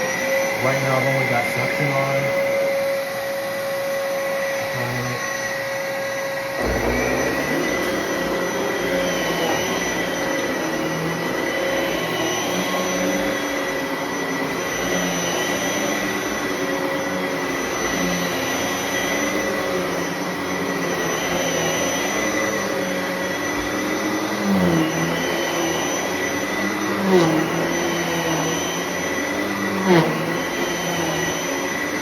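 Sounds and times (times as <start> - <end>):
upright vacuum cleaner running: 0.0 - 32.0.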